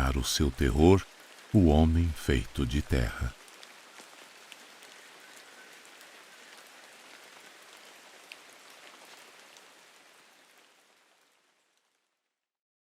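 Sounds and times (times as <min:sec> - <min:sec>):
steady rain falling: 0:00.0 - 0:12.5.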